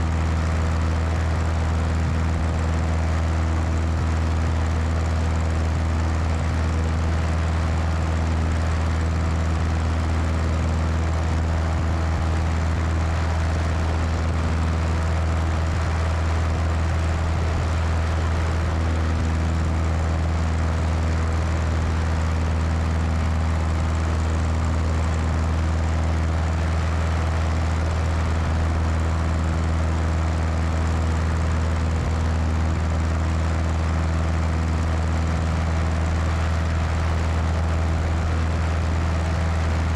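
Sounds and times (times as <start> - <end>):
propeller engine drone: 0.0 - 39.9.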